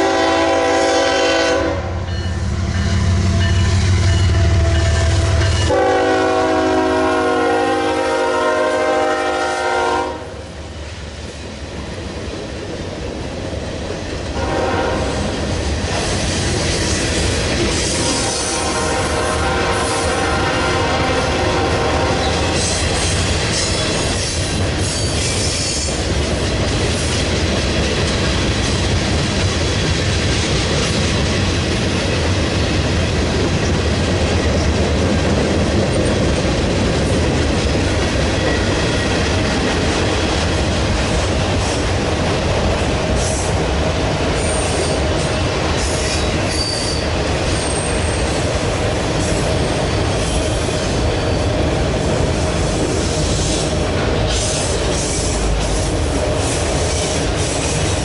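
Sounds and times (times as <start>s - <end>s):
freight train cars rolling past: 0.0s - 58.0s
train wheel squeals: 22.2s - 27.2s, 38.4s - 39.4s, 44.4s - 48.5s, 50.1s - 51.7s, 52.6s - 58.0s.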